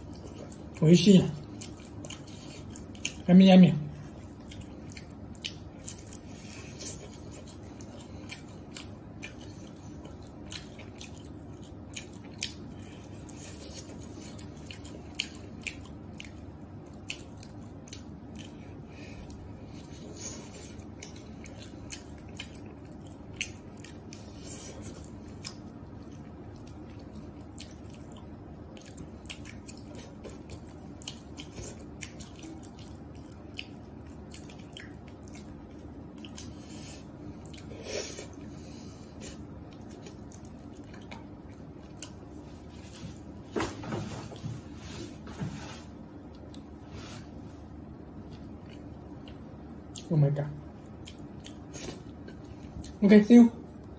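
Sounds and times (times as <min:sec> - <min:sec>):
chewing and biting food: 0:00.0 - 0:43.4, 0:47.4 - 0:53.0
steady background hum: 0:00.0 - 0:53.9.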